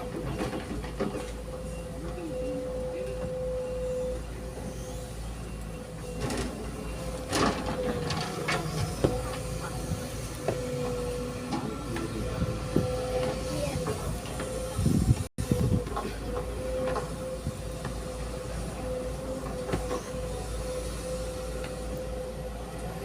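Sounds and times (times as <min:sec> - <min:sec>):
knocks and clanks of machinery: 0:00.0 - 0:01.8, 0:05.9 - 0:20.7
diesel engine rumble with whine: 0:00.0 - 0:23.0.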